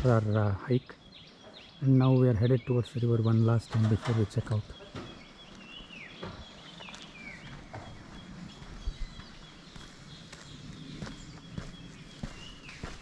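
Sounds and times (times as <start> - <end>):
footsteps on outdoor path: 3.7 - 13.0.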